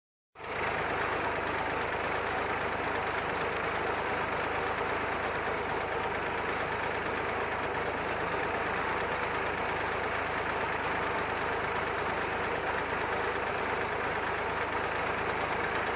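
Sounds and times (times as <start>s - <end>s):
corn harvester running: 0.4s - 15.9s
tractor diesel engine: 0.4s - 15.9s.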